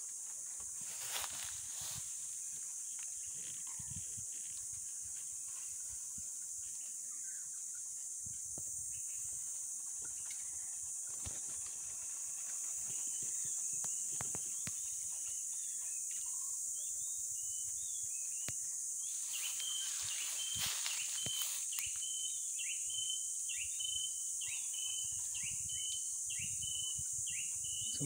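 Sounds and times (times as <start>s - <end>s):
high-pitched insect drone: 0.0s - 28.0s
rustle of dry leaf litter: 0.1s - 6.2s, 19.1s - 22.0s.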